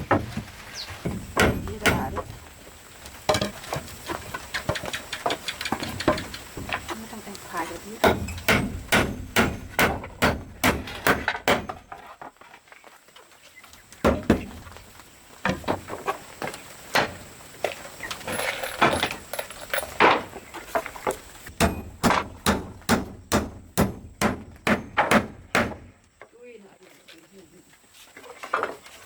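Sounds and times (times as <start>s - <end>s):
hand tool knocking on wood: 1.1s - 2.3s, 8.0s - 11.8s.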